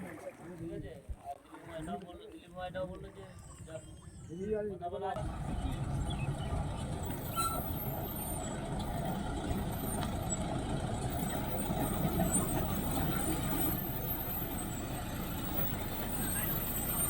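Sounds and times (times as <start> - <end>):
heavy engine rumbling: 5.2 - 17.0.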